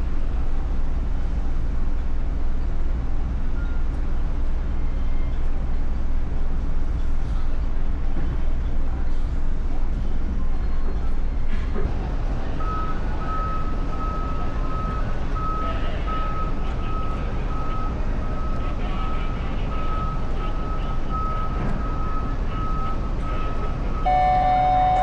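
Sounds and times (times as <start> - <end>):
steady low rumble: 0.0 - 22.8
electronic warning beeper: 24.0 - 25.0.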